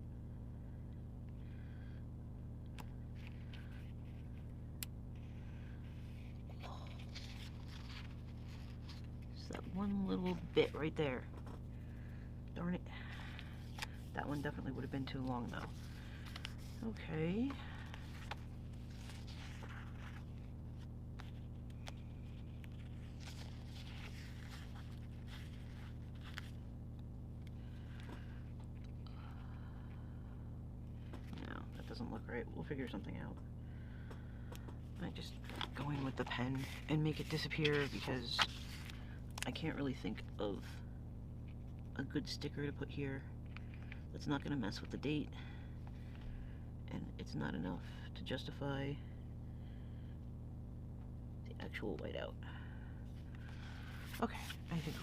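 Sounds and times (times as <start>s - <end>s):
steady low hum: 0.0s - 55.0s
paper rustling: 5.3s - 11.7s, 13.2s - 20.6s, 21.2s - 26.6s, 35.2s - 39.5s.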